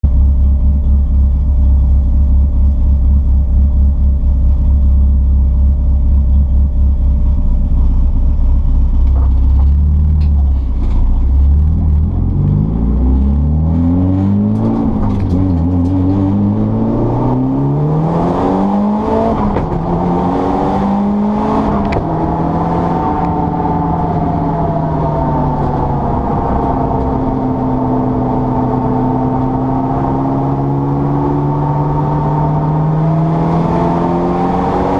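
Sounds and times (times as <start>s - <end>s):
race car engine accelerating: 9.0s - 34.9s.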